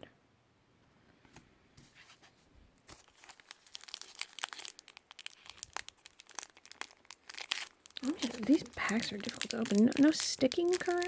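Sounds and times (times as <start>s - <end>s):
foil wrapper tearing and crinkling: 2.9s - 11.0s.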